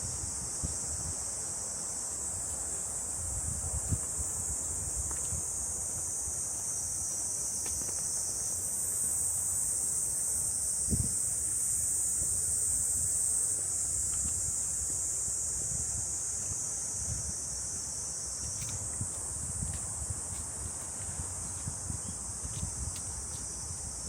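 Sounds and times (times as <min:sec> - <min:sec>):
wind rumble on microphone: 0:00.0 - 0:01.4, 0:02.4 - 0:06.4, 0:10.7 - 0:24.0.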